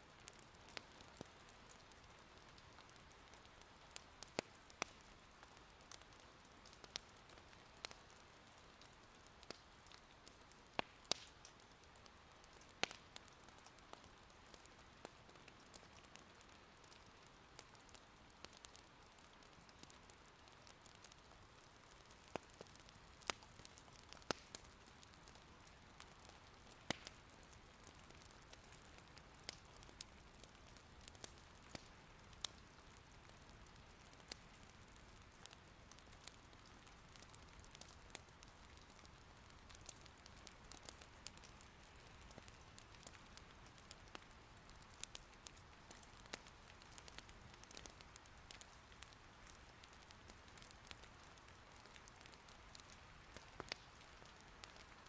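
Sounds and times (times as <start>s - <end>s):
soft rain: 0.0s - 55.0s
firewood crackling: 0.1s - 55.0s.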